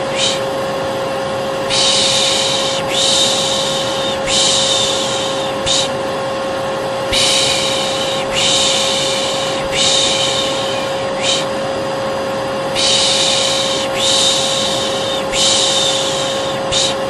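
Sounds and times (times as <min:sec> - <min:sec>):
person shushing: 0:00.0 - 0:00.5, 0:01.7 - 0:06.0, 0:07.1 - 0:11.6, 0:12.7 - 0:17.0
hair dryer humming: 0:00.0 - 0:17.0.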